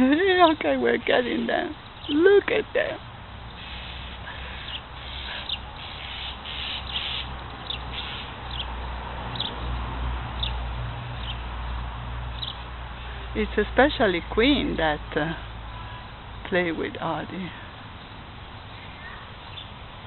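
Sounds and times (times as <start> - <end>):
bird chirping: 1.3 - 2.5, 3.5 - 9.8, 10.4 - 10.6, 11.2 - 11.4, 12.3 - 12.7, 18.0 - 19.8.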